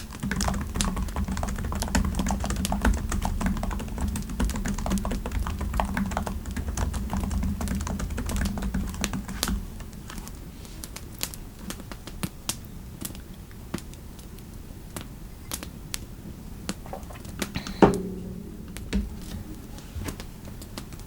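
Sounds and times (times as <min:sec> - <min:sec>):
keyboard typing: 0:00.0 - 0:10.4.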